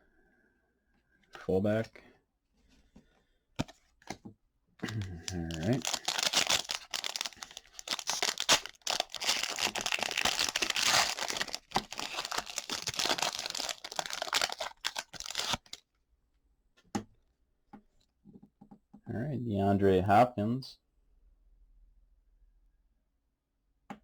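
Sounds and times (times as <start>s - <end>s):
plastic wrapper tearing and crinkling: 4.8s - 15.8s.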